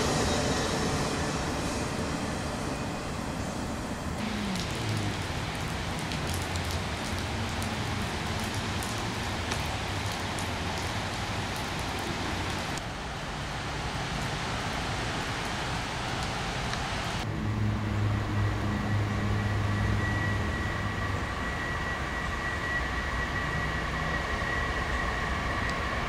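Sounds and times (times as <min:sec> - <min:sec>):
thin high whine: 0:00.0 - 0:05.4, 0:17.3 - 0:26.0
diesel locomotive rumble: 0:00.0 - 0:10.8
rain pattering: 0:04.2 - 0:17.3.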